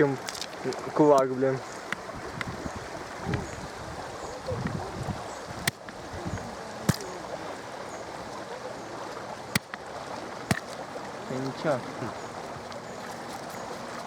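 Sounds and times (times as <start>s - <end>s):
river stream rushing: 0.0s - 14.0s
stone being struck: 6.9s - 7.1s, 9.6s - 9.8s, 10.5s - 10.8s.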